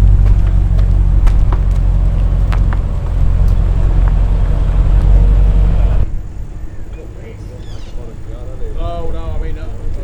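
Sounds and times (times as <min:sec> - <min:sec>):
car engine running: 0:00.0 - 0:06.1.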